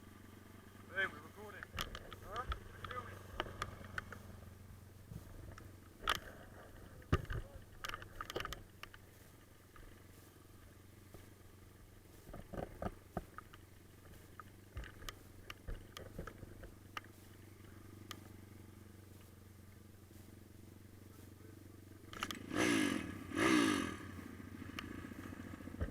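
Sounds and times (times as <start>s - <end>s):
pit bike engine idling: 0.0s - 25.9s
scattered clicks and knocks: 1.5s - 4.3s, 5.4s - 9.0s, 12.3s - 17.1s.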